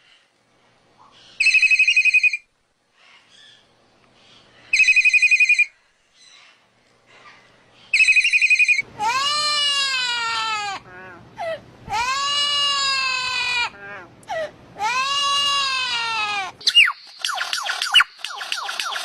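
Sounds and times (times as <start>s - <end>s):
telephone ringing: 1.5s - 2.4s, 4.8s - 5.7s, 8.0s - 8.8s.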